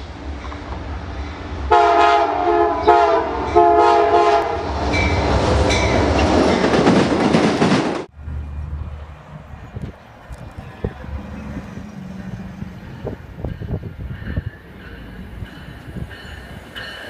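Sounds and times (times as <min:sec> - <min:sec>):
train passing close by: 0:00.0 - 0:17.0
train air horn blasts: 0:01.7 - 0:04.6.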